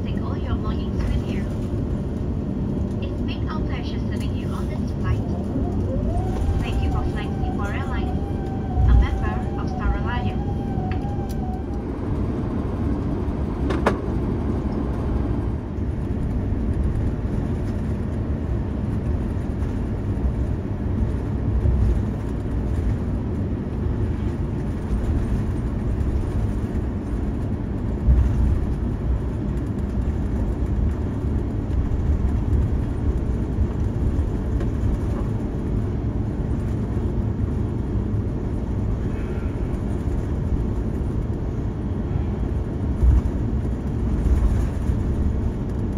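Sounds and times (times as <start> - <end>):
vehicle rumble from inside: 0.0 - 45.9.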